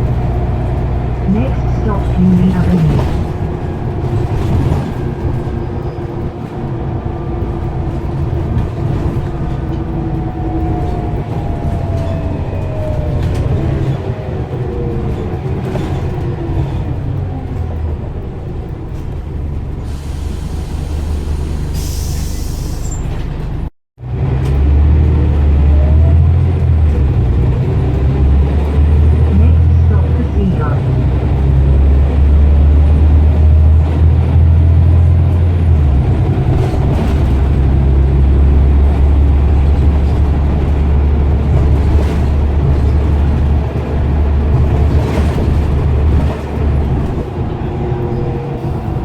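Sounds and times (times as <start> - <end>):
engine whine: 0.0 - 21.7
bus engine running hard: 0.0 - 49.0.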